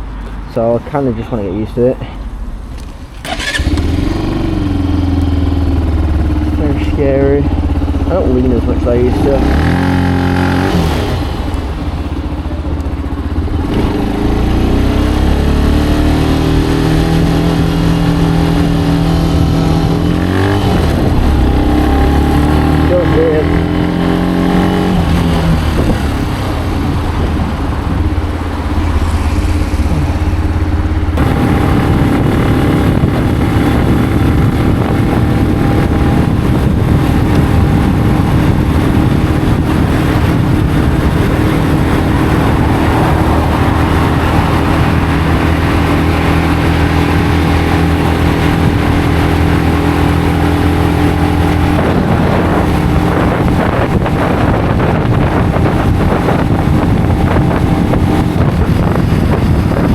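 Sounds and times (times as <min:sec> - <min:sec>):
motorcycle engine running: 0:02.2 - 0:59.9.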